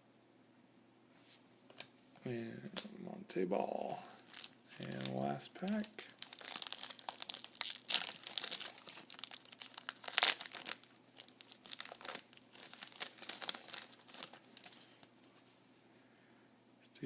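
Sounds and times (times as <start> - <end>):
wrapper tearing and crinkling: 4.1 - 15.1.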